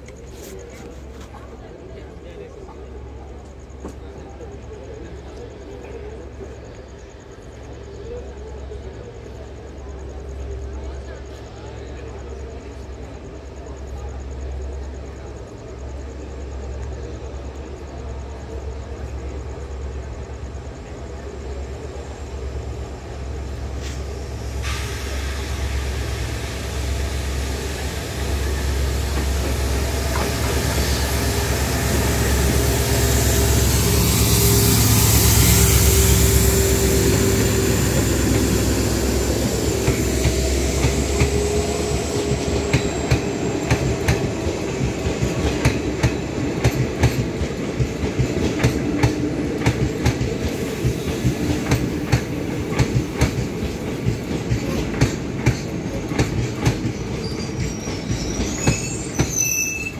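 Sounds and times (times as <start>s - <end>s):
locomotive low rumble: 0.0s - 59.0s
train wheels clickety-clack: 27.2s - 59.9s.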